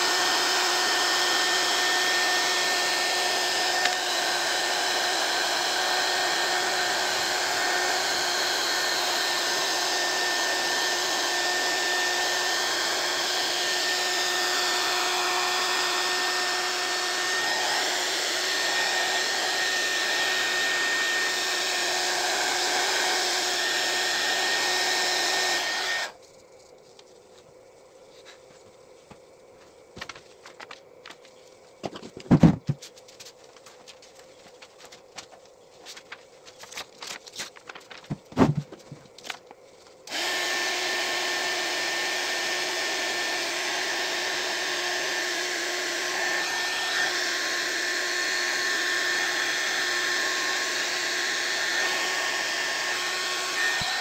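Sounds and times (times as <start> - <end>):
hot air gun fan blowing: 0.0 - 26.2, 38.1 - 54.0.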